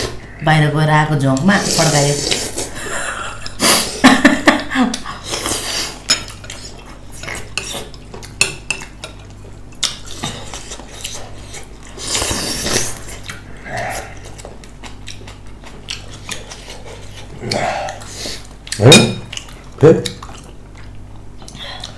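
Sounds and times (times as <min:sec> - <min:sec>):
utensils clinking against dishes: 0:18.8 - 0:19.3.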